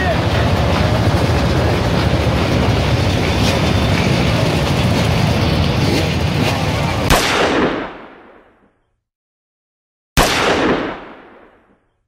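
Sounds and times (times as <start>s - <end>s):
motorbike engines rumbling: 0.0s - 7.1s.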